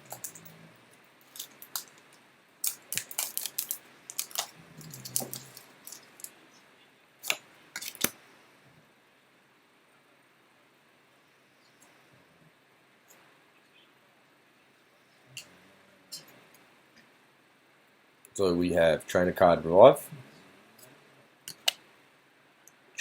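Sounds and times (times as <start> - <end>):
foil wrapper crackling and tearing: 1.3 - 2.0, 2.6 - 6.3, 7.2 - 8.1.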